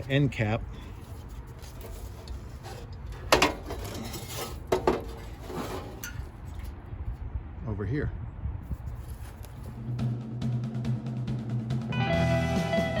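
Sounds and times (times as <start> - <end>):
metal tools clanking: 1.1 - 6.7.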